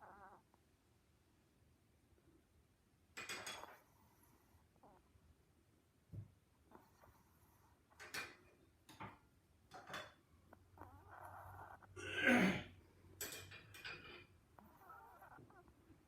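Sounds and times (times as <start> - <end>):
dog snoring: 10.8 - 12.0, 14.6 - 15.6.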